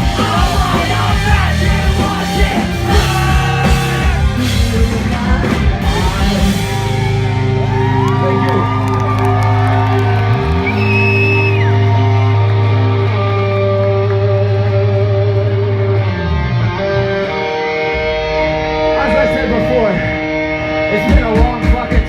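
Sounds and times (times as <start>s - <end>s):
bass sliding: 0.0s - 21.9s
live rock band playing: 0.0s - 22.0s.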